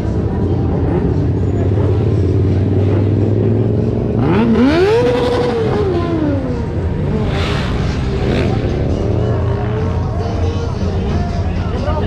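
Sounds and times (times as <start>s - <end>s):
idling engines rumbling: 0.0s - 12.0s
motorcycle engine revving: 1.9s - 10.6s.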